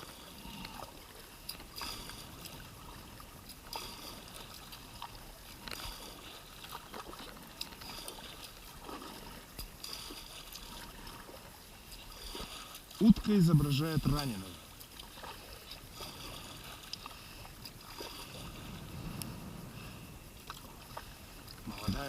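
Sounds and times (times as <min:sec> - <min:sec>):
kayak paddle dipping: 0:00.0 - 0:22.0
water trickling and splashing: 0:00.0 - 0:22.0.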